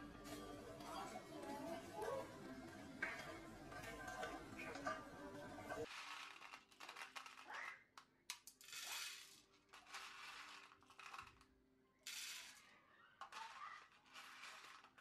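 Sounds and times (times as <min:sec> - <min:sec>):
popcorn kernels clattering into pot: 0:00.8 - 0:07.5, 0:08.4 - 0:11.5.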